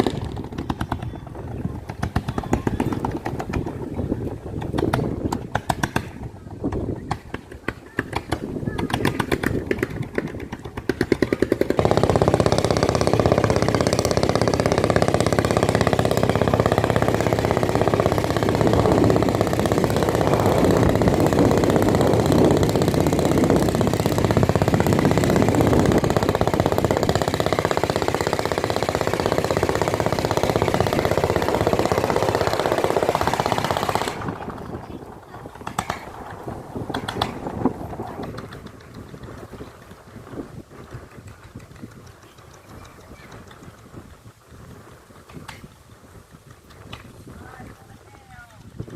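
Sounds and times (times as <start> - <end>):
boat engine running: 0.0 - 48.9.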